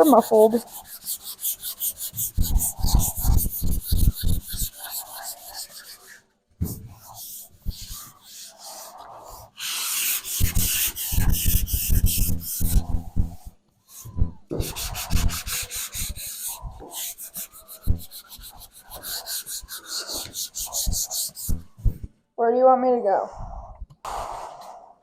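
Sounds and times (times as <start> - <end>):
sandpaper sanding car panels: 0.0 - 6.0, 14.6 - 21.7.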